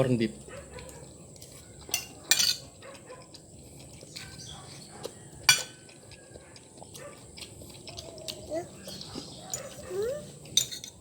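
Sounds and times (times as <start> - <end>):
cutlery clinking on a plate: 1.9 - 2.7, 5.5 - 5.8, 10.6 - 11.0.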